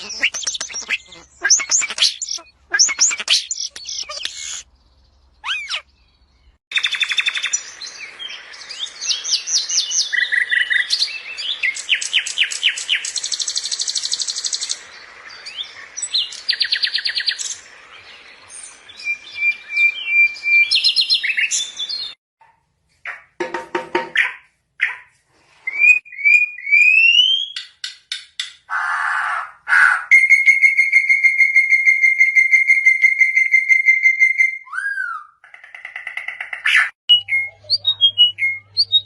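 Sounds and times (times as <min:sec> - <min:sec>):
parrot chirping and trilling: 0:00.0 - 0:06.2
parrot whistle: 0:05.4 - 0:05.8.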